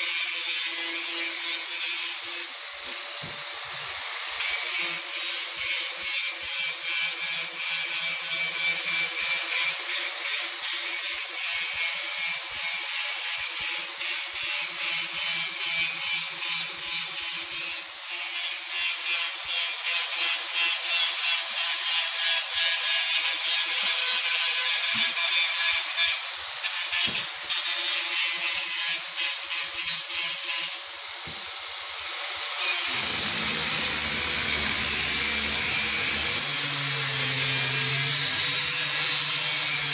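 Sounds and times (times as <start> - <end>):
angle grinder grinding steel: 0.0 - 39.9.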